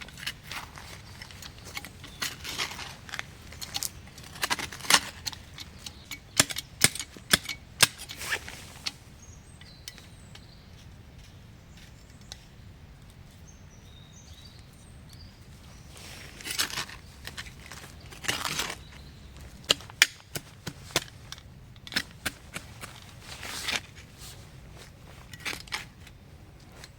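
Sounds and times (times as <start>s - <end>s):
rustling crunching bursts: 0.0s - 9.3s, 15.4s - 26.9s
sharp cracks and snaps: 16.4s - 24.0s.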